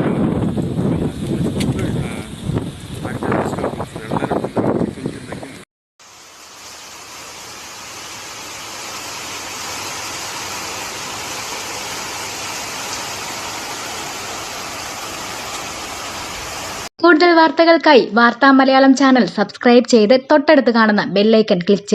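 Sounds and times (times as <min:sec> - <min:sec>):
floodwater rushing: 0:06.0 - 0:16.9.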